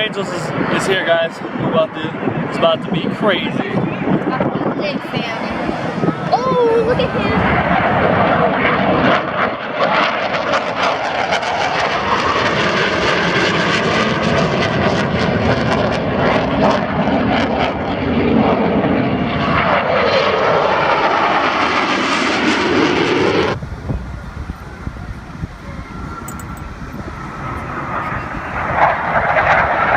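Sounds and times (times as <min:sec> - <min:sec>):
jet engine roar passing overhead: 0:00.0 - 0:29.9.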